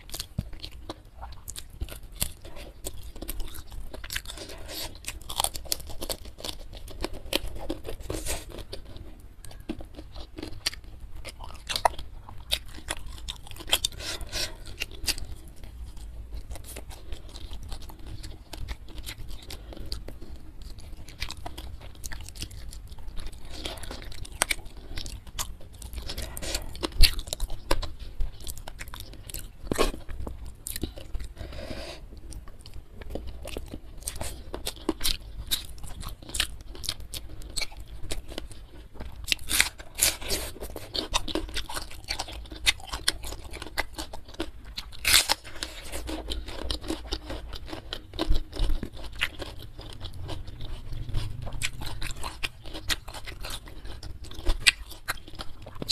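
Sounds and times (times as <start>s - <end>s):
crunchy food chewing: 0.0s - 55.9s.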